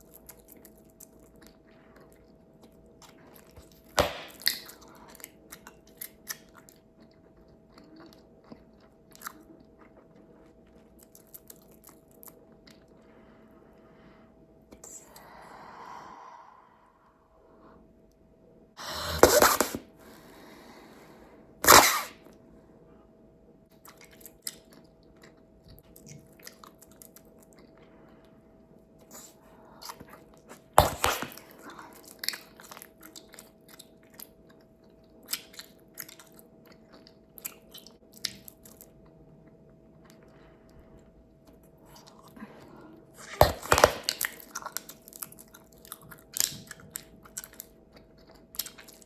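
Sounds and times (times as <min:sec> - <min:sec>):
gum chewing with wet clicks: 0:00.0 - 0:13.1, 0:23.7 - 0:28.3, 0:31.7 - 0:42.3, 0:44.1 - 0:49.0.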